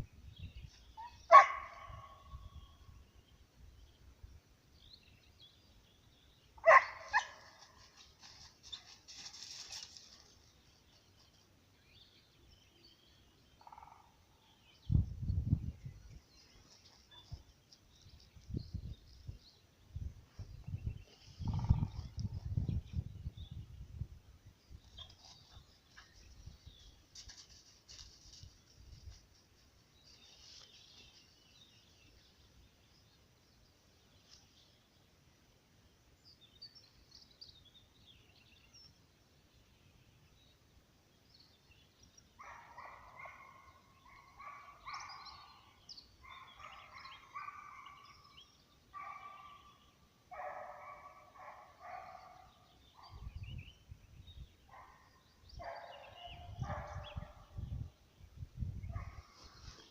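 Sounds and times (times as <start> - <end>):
small birds chirping: 0.0 - 35.2, 35.9 - 59.9
hound barking: 1.0 - 2.3, 6.6 - 7.6, 42.4 - 45.6, 46.2 - 48.1, 49.0 - 49.7, 50.3 - 53.2, 54.7 - 57.6
brief rustle: 7.8 - 10.3.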